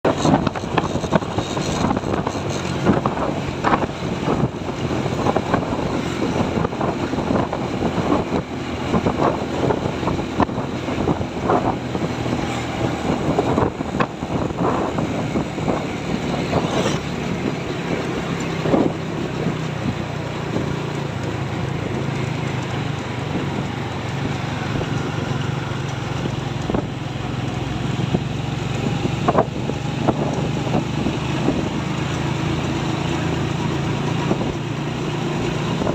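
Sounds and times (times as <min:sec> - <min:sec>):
truck engine running: 0:00.0 - 0:35.9
wind noise on microphone: 0:00.0 - 0:35.9.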